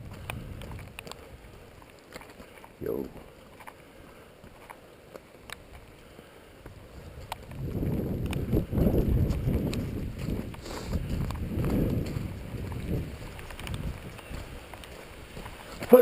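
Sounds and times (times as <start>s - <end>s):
wind gusting on microphone: 0.0s - 1.8s, 6.6s - 16.0s.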